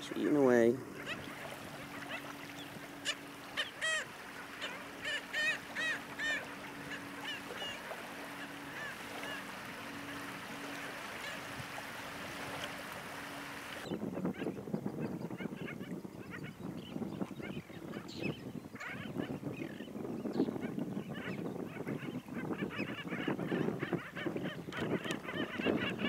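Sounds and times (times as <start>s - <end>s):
faint steady hum: 0.0s - 13.9s
birds honking calls: 0.0s - 14.5s, 15.4s - 26.0s.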